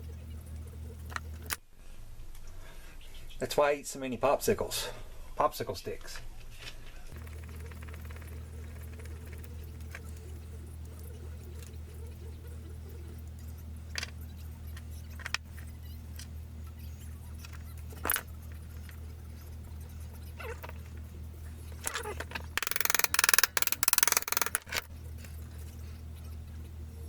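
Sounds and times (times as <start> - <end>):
rapid clattering rattle: 7.2 - 10.0, 21.7 - 24.9
small object clicks: 21.8 - 24.9.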